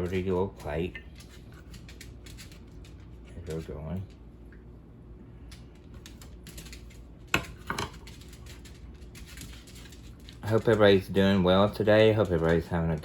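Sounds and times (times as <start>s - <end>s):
faint steady hum: 0.0s - 13.0s
kitchen clicking and tapping: 7.3s - 8.3s.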